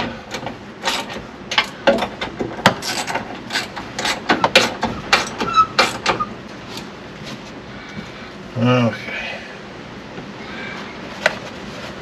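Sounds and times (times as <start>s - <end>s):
high squeak: 4.4s - 6.4s.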